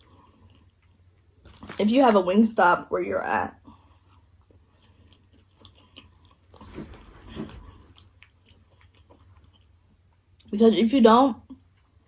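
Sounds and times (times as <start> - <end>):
person chewing food: 0.0 - 1.8, 3.6 - 10.5
bites and smacks: 0.6 - 2.4.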